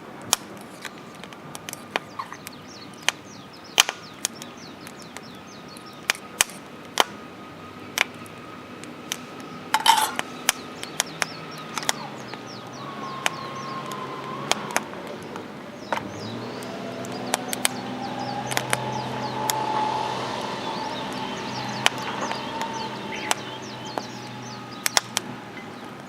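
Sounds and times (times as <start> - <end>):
birds chirping: 0.0 - 26.0
sharp clicks and clinks: 9.8 - 10.3.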